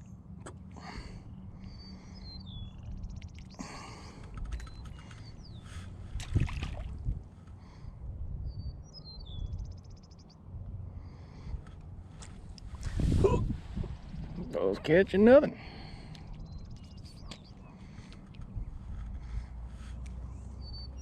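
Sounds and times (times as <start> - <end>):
steady low rumble: 0.0 - 21.0
songbird singing with buzzy trill: 1.3 - 3.7, 4.5 - 5.7, 8.4 - 10.4, 16.2 - 17.8, 20.5 - 21.0.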